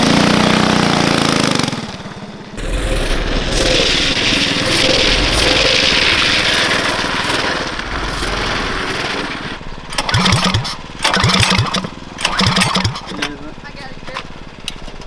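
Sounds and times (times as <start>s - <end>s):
small engine sputtering under load: 0.0s - 15.0s
wind noise: 2.6s - 10.0s.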